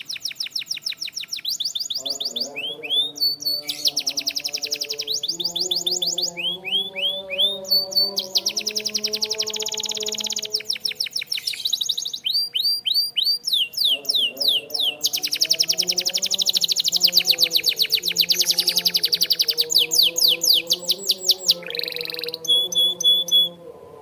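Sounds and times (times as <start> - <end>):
canary singing trills: 0.0 - 23.6.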